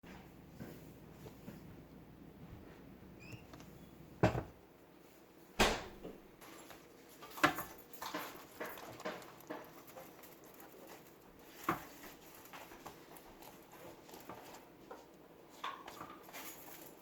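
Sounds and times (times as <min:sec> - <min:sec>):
sharp knocks: 0:05.6 - 0:06.3.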